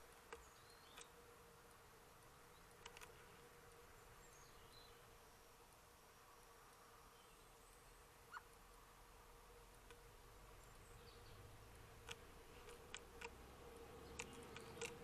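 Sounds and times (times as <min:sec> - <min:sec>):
faint bird chirps: 0:00.0 - 0:01.3, 0:02.2 - 0:08.6, 0:10.4 - 0:12.9, 0:13.6 - 0:15.0
faint steady hum: 0:00.0 - 0:15.0
short clicks: 0:14.1 - 0:15.0.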